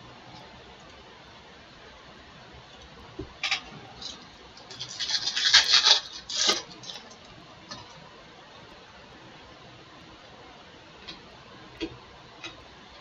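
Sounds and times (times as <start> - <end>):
wrapper being torn and crinkled: 4.7 - 7.0.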